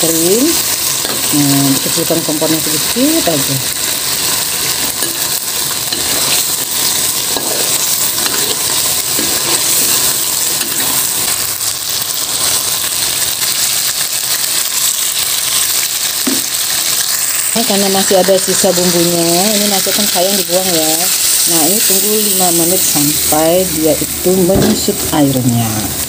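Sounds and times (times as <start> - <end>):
food sizzling in a wok: 0.0 - 26.0
metal spatula scraping pan: 4.2 - 11.1.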